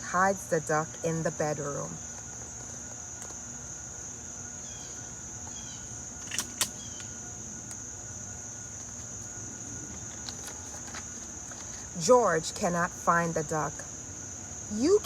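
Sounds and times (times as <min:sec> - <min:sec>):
insect chorus drone: 0:00.0 - 0:15.0
sharp clicks: 0:06.2 - 0:07.1.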